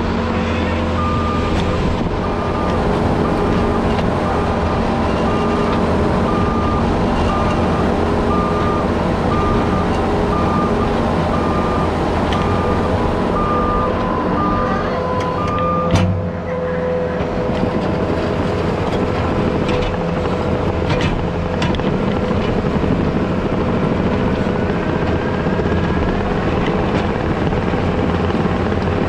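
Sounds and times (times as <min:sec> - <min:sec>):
diesel engine running: 0:00.0 - 0:29.0
backup alarm beeping: 0:00.9 - 0:16.0.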